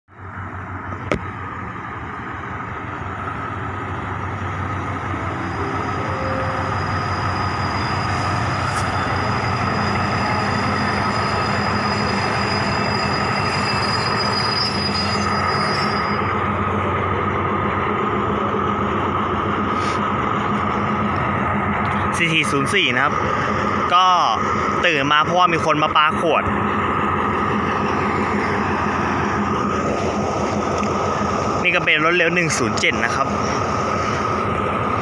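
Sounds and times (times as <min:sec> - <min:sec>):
passenger train passing: 0:00.1 - 0:35.0
high wheel squeal: 0:04.6 - 0:16.5.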